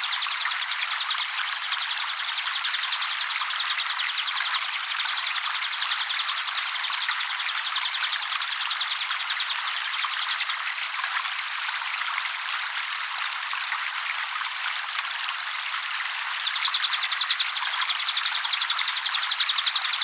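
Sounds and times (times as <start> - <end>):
bird trilling: 0.0 - 10.5, 16.5 - 20.0
trickling water: 0.0 - 20.0.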